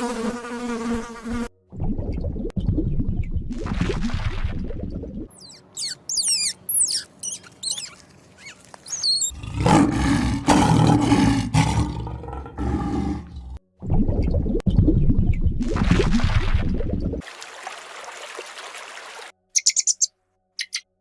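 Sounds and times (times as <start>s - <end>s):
high chirps falling in pitch: 5.3s - 9.4s, 19.6s - 20.9s
large animal deep call: 9.3s - 13.6s.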